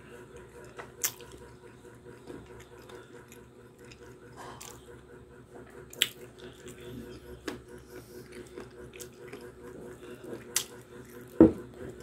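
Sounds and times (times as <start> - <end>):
man chewing food: 0.0 - 12.0
steady background hum: 0.0 - 12.0.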